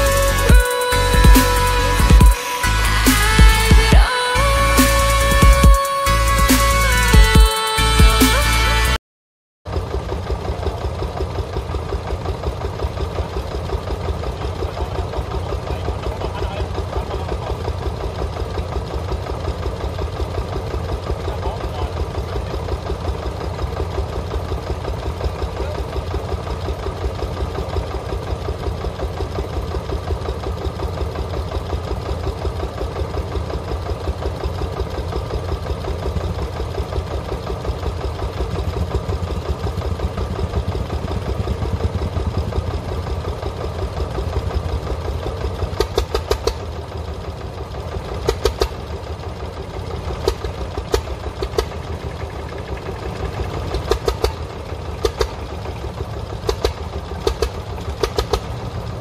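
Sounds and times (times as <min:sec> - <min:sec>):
tractor engine running: 0:00.0 - 0:09.0, 0:09.6 - 0:59.0
sharp clicks: 0:45.8 - 0:46.6, 0:53.7 - 0:54.4, 0:55.0 - 0:55.4, 0:56.4 - 0:58.6.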